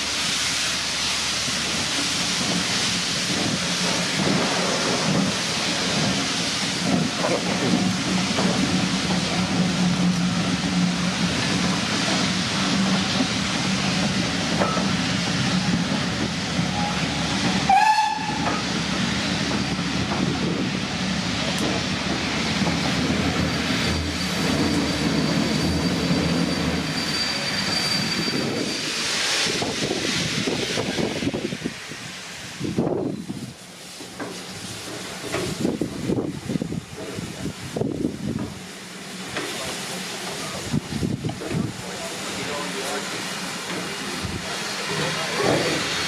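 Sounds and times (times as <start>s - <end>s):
steam train passing: 0.0s - 46.0s
steam whistle: 16.7s - 18.6s.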